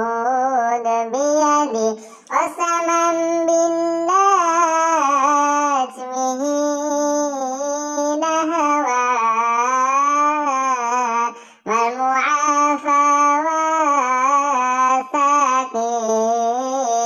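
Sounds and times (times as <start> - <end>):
high child-like singing voice: 0.0 - 17.0
short breaths: 2.0 - 2.3, 11.3 - 11.7.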